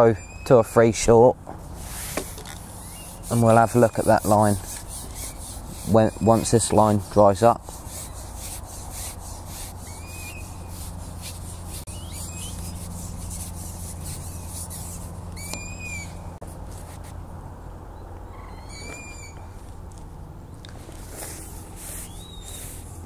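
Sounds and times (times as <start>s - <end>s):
bird calling: 0.0s - 0.9s, 2.2s - 7.0s, 9.6s - 13.5s, 14.2s - 16.4s, 18.3s - 19.5s, 21.9s - 22.8s
low background hum: 0.0s - 23.0s.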